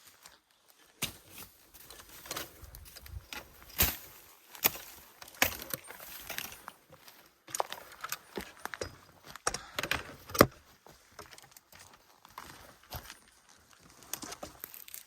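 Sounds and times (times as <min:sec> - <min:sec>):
twigs snapping and crunching: 0:00.7 - 0:06.7, 0:11.2 - 0:15.0.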